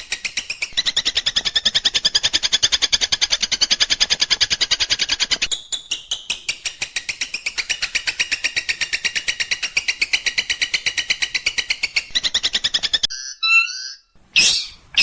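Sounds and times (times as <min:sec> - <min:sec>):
bird song of rapid high notes: 0:13.1 - 0:15.0.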